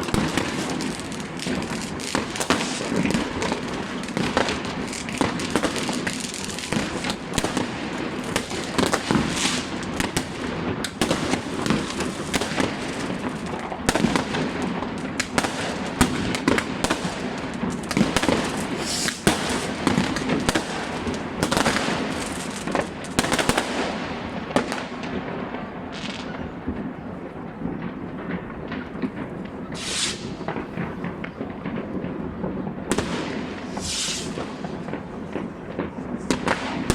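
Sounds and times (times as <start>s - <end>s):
fireworks bangs and crackles: 0.0s - 36.9s
whistling rockets: 17.9s - 22.6s, 29.6s - 31.8s, 32.9s - 35.1s.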